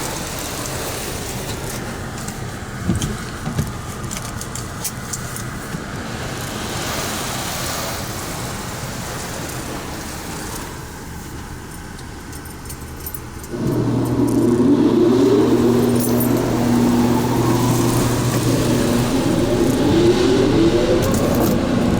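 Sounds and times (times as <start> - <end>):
car wash hissing: 0.0 - 12.3, 13.5 - 21.9
motor humming and whining: 13.5 - 21.9.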